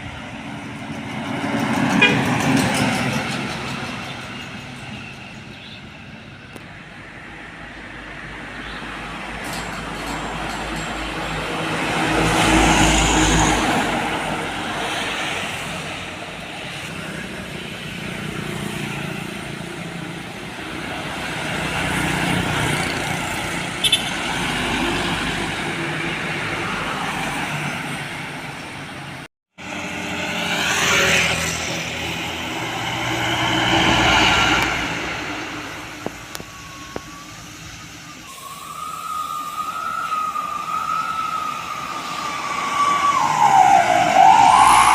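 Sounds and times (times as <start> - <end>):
heavy road vehicles passing: 0.0 - 44.9
wavering siren-like tone: 30.5 - 44.9.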